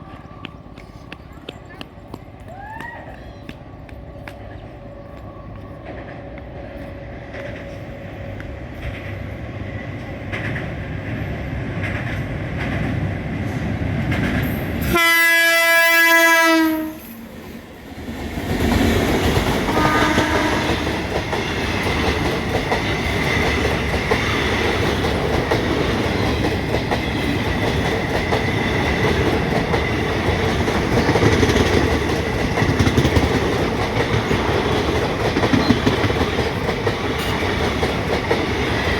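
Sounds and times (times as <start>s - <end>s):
train approaching: 0.0s - 38.9s
train horn: 14.8s - 17.2s, 19.7s - 21.0s.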